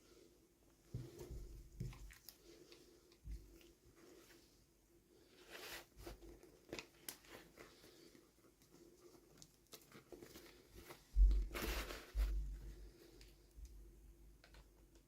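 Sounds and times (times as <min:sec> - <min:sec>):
wrapping tearing and crinkling: 0:05.4 - 0:12.4.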